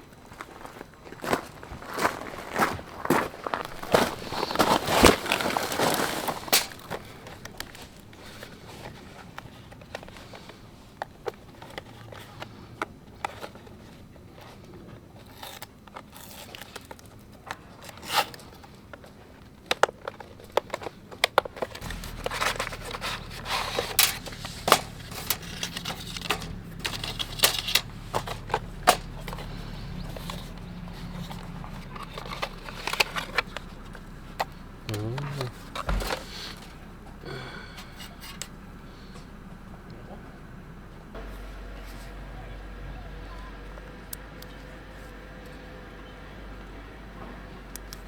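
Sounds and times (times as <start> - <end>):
objects being handled: 3.7 - 39.4
low steady hum: 21.8 - 48.0.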